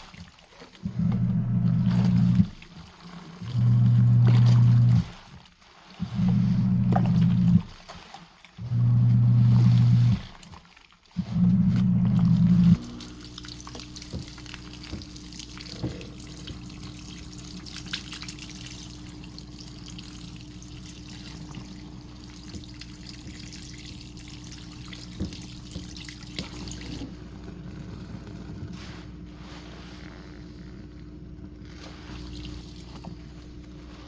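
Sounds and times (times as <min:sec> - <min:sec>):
bubbles fizzing and crackling: 0:00.0 - 0:08.6, 0:09.2 - 0:27.3, 0:28.9 - 0:34.0
washing machine hum: 0:00.0 - 0:34.0.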